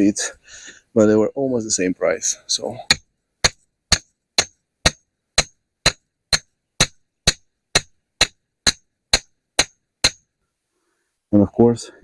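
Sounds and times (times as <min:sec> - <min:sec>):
mallet striking metal post: 0:02.9 - 0:10.3.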